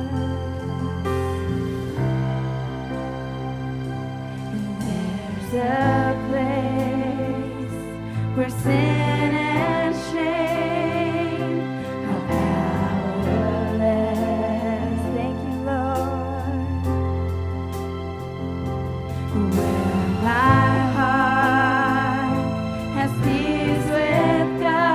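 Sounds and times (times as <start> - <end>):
band playing sustained chords: 0.0 - 24.9
wordless singing: 4.5 - 16.6, 19.3 - 24.9.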